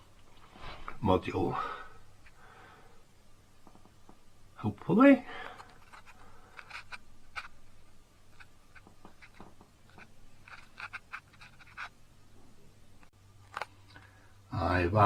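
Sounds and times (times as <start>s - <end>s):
low steady hum: 0.0s - 15.0s
small clicks and rustles: 5.4s - 12.0s.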